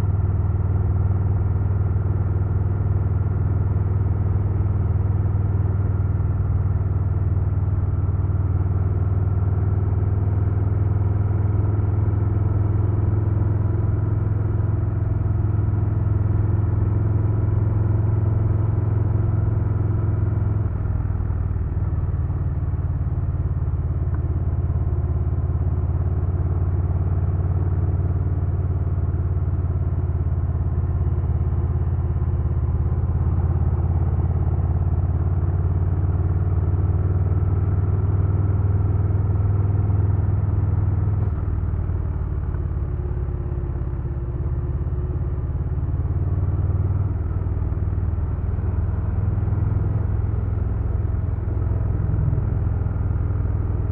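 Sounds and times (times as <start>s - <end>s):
motorcycle engine running: 36.4s - 53.9s.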